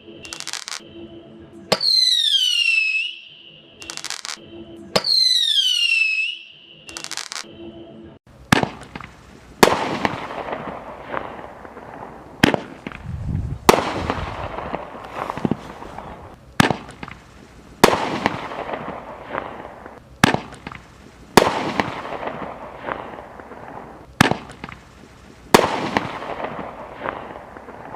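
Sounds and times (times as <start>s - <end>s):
crackling hiss of fireworks: 0.0s - 0.8s, 3.8s - 4.4s, 6.9s - 7.4s, 8.3s - 27.9s
fireworks popping: 0.2s - 0.8s, 3.8s - 4.4s, 6.9s - 7.5s, 8.4s - 27.9s.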